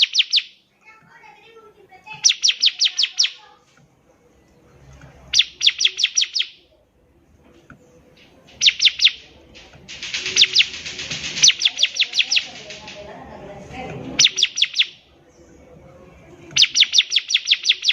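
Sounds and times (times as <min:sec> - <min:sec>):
bird singing sharp notes: 0:00.0 - 0:00.6, 0:02.1 - 0:03.4, 0:05.3 - 0:06.7, 0:08.5 - 0:09.3, 0:10.0 - 0:12.7, 0:14.2 - 0:15.1, 0:16.5 - 0:17.9.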